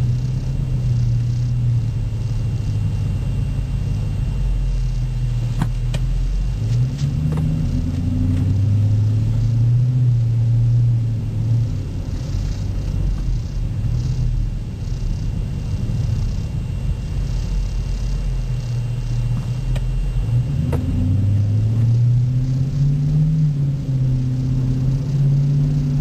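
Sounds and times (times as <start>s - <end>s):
low exhaust drone: 0.0s - 26.0s.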